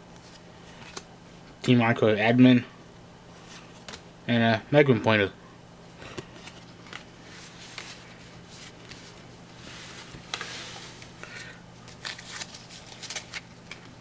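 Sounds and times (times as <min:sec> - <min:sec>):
cards rustling: 0:06.0 - 0:14.0.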